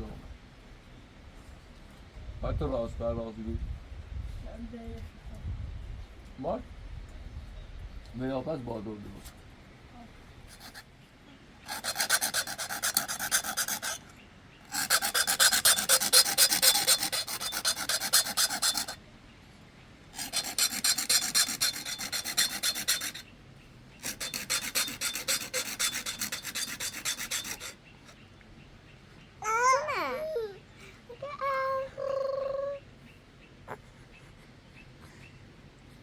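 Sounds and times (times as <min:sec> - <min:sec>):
rapid rasping strokes: 0:10.5 - 0:10.9, 0:11.7 - 0:19.0, 0:20.2 - 0:23.3, 0:24.0 - 0:28.2.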